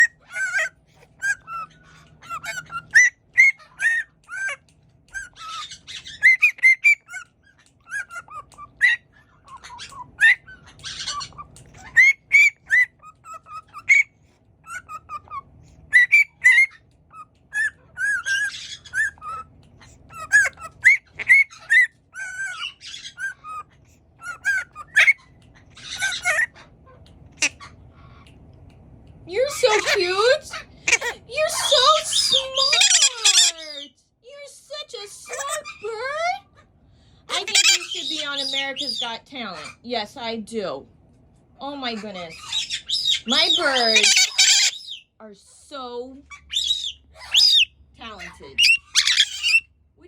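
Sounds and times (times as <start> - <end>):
parrot harsh squawks: 0.0 - 4.6, 5.2 - 26.8, 29.5 - 34.0, 35.0 - 36.7, 37.3 - 39.9, 42.0 - 45.1, 46.3 - 49.7
parrot chirps and whistles: 0.0 - 26.7, 30.8 - 34.0, 37.3 - 39.8, 42.3 - 45.1, 46.3 - 47.7, 48.5 - 49.7.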